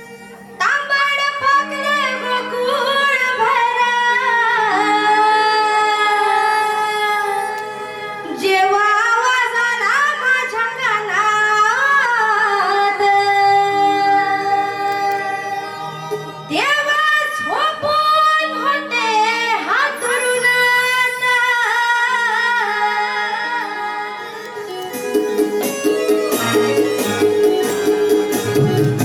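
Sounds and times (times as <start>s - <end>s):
held accompanying notes: 13.2s - 29.0s.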